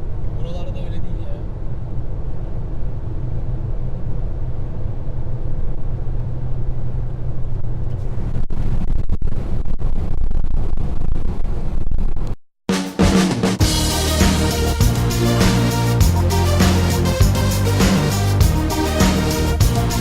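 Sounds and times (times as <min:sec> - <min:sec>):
car engine and road drone: 0:00.0 - 0:08.9, 0:13.6 - 0:20.0
drum-led music: 0:12.7 - 0:20.0.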